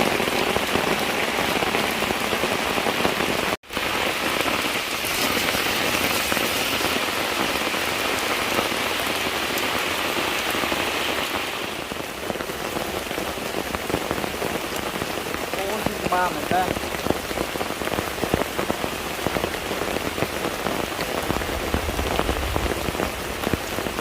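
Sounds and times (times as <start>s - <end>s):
rain pattering: 0.0s - 24.0s.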